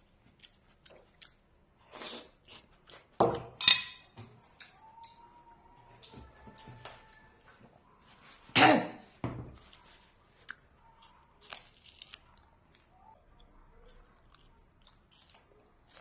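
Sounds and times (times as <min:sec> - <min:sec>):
person eating: 0:00.0 - 0:03.2, 0:09.6 - 0:16.0.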